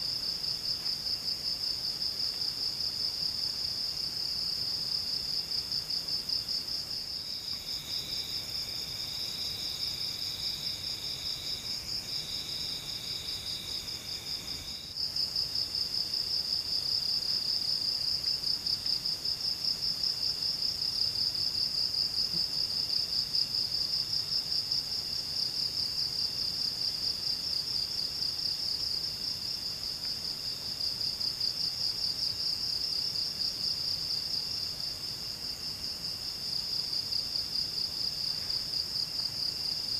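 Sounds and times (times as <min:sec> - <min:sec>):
lower insect song: 0:00.0 - 0:39.9
high insect trill: 0:06.3 - 0:18.8.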